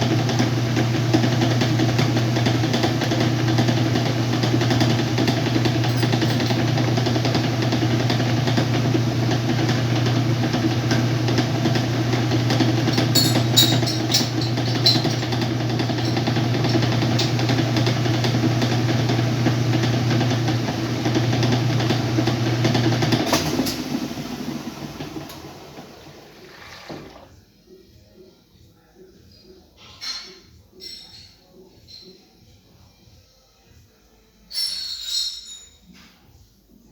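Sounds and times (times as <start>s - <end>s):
washing machine motor hum: 0.0s - 27.4s.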